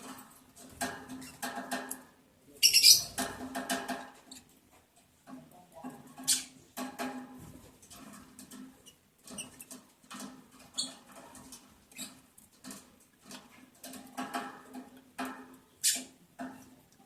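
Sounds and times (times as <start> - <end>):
birds scratching and shuffling: 0.0 - 17.0
bird squeaks: 2.6 - 3.2.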